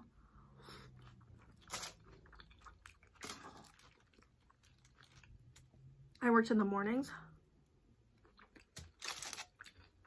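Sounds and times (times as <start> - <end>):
chewing nachos: 0.6 - 6.2, 8.0 - 10.0.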